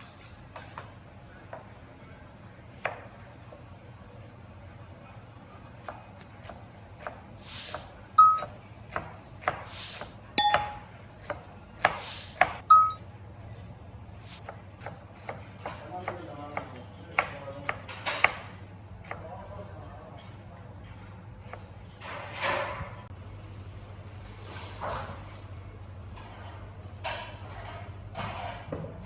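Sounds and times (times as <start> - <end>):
short hissing swishes: 9.7 - 10.1
metallic utensil clinks: 10.4 - 10.9.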